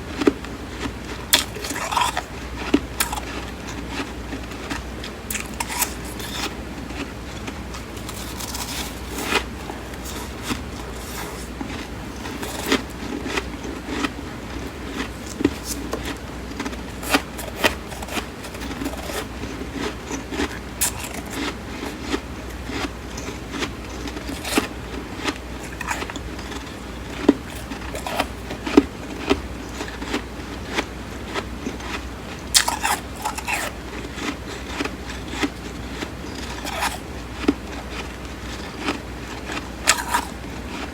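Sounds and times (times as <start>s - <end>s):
chewing crunchy frost: 0.1s - 40.9s.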